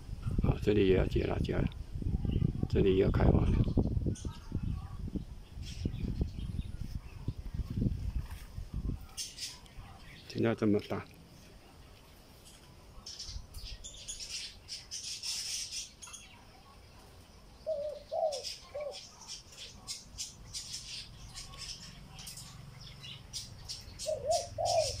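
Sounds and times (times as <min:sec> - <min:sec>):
soft scratchy rustling: 0:05.6 - 0:13.2
bird calling: 0:17.6 - 0:25.0.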